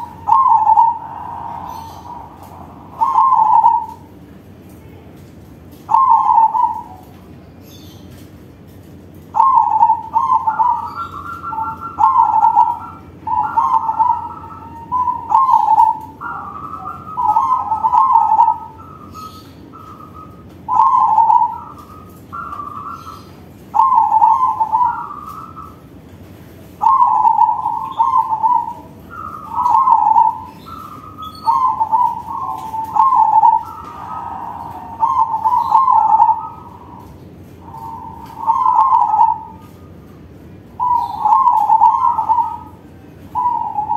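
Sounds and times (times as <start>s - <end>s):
dove cooing: 0.0s - 4.3s, 5.6s - 8.2s, 9.0s - 43.9s.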